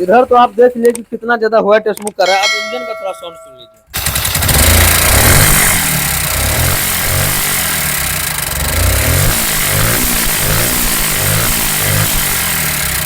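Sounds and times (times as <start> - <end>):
motorcycle engine revving: 3.9 - 13.0.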